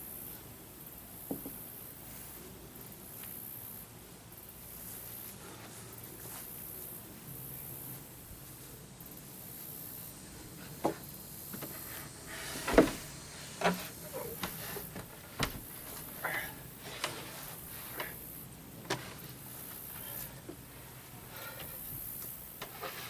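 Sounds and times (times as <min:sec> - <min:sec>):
knocks and clunks of hard parts: 0:12.6 - 0:16.0.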